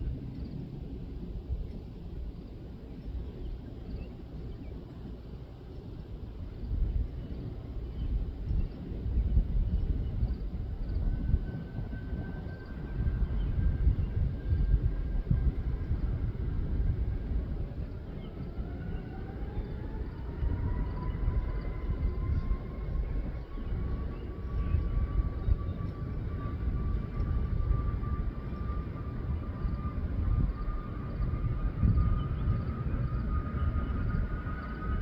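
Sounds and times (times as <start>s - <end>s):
jet engines spooling up: 3.5s - 35.0s.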